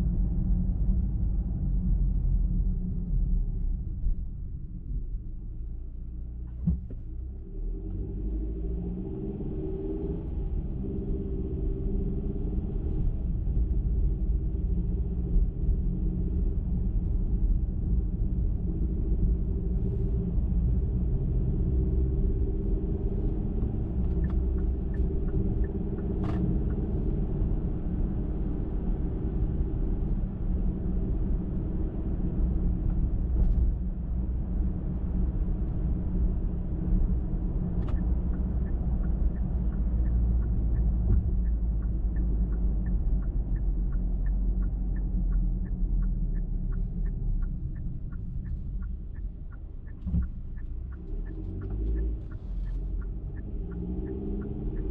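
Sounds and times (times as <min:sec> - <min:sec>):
tyres and engine rumble: 0:00.0 - 0:54.9
light even ticking: 0:36.9 - 0:54.9.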